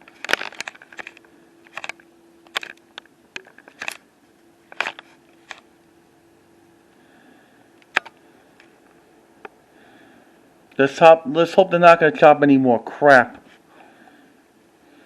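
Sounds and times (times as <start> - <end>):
sharp clicks and light knocks: 0.0 - 4.0
faint steady hum: 0.0 - 15.0.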